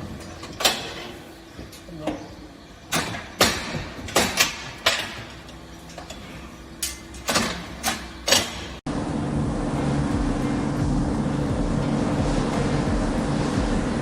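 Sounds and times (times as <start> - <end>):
sharp knocks and clanks: 0.0 - 8.8.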